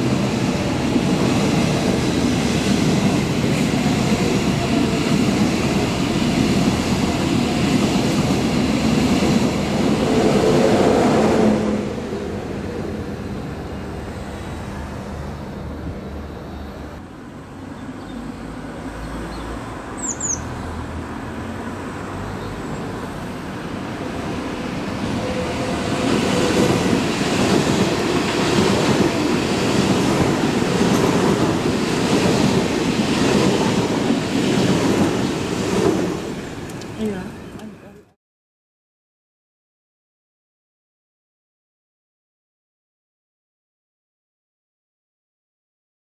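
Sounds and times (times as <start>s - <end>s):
electric train running noise: 23.0s - 37.7s
train wheels clattering over track: 25.3s - 37.7s.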